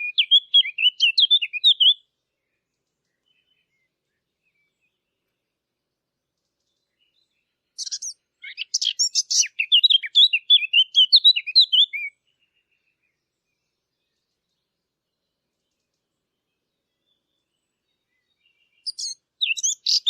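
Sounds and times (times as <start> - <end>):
warbler singing: 0.0 - 20.0.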